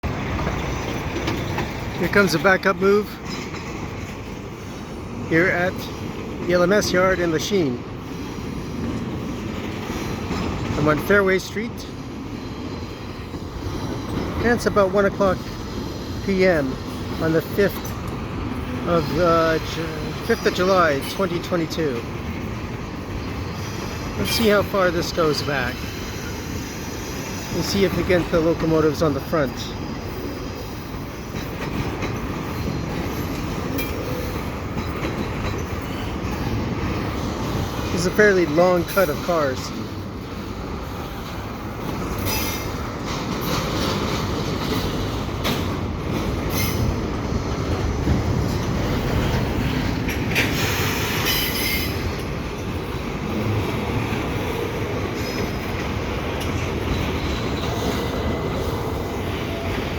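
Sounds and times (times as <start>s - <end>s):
wheels rumbling on rail: 0.0s - 59.9s
high wheel squeal: 50.3s - 53.5s, 56.7s - 59.9s.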